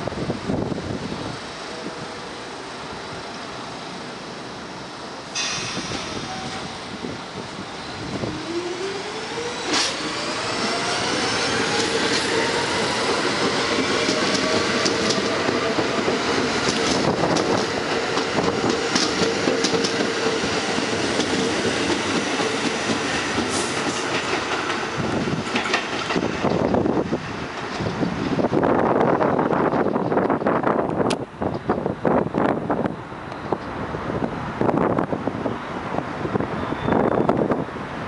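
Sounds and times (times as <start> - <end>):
subway train motor whine: 0.4 - 24.2
wheels clicking over rail joints: 13.0 - 26.8.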